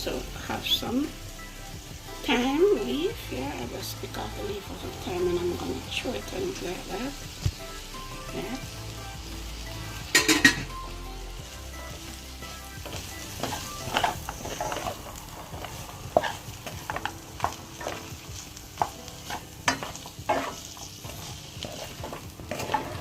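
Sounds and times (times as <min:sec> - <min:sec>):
shrimp sizzling in a pot: 0:00.0 - 0:23.0
utensil scraping a pot: 0:13.4 - 0:18.1, 0:18.8 - 0:23.0.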